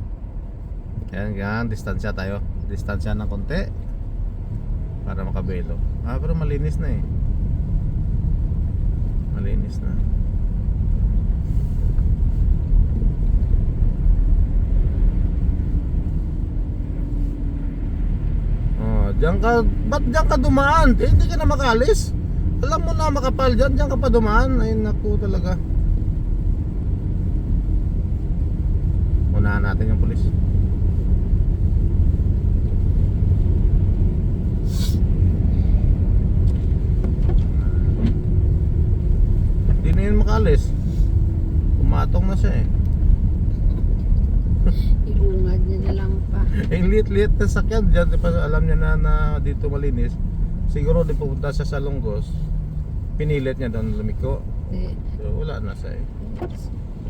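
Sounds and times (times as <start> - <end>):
car engine and tyre rumble: 0.0 - 57.0
short hiss: 34.6 - 35.9.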